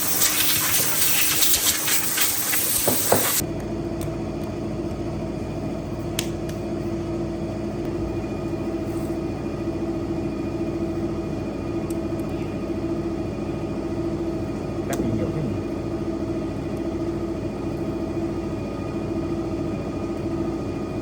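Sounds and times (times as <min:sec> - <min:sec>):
loud hiss: 0:00.0 - 0:03.4
machine hum: 0:00.0 - 0:21.0.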